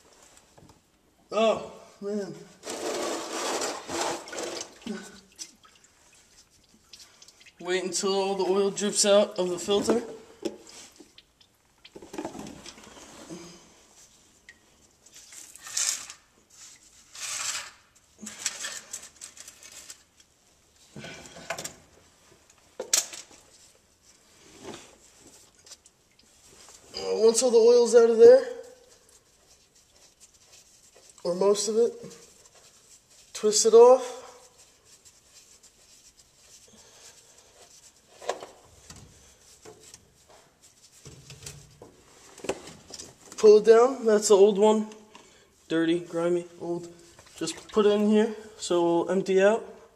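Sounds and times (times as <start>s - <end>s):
rustling and clattering: 2.6s - 4.8s, 11.9s - 13.3s, 15.0s - 26.9s, 34.4s - 43.4s
oil filter rubbing and clicking: 28.7s - 33.4s.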